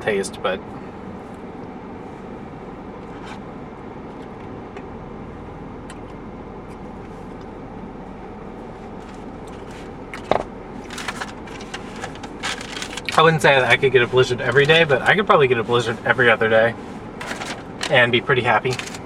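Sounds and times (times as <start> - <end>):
car air conditioning blowing: 0.0 - 19.0
rustling: 10.8 - 16.2, 16.8 - 19.0.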